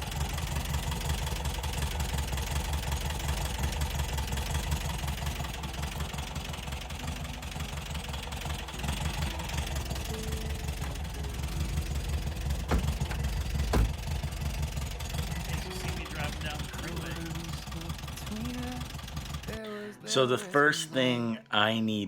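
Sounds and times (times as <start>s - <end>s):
air-cooled engine idling: 0.0s - 20.5s.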